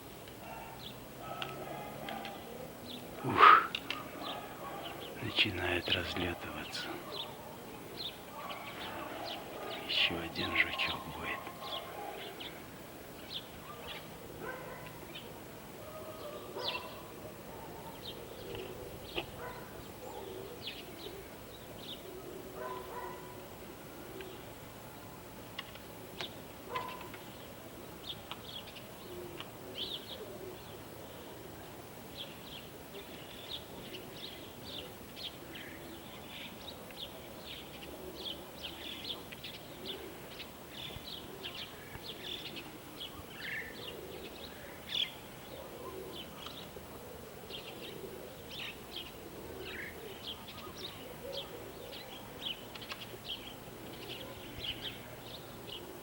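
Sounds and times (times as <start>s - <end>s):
small birds chirping: 0.0s - 56.0s
pigeons cooing: 0.4s - 12.8s, 13.6s - 24.7s, 28.9s - 31.8s, 37.1s - 56.0s.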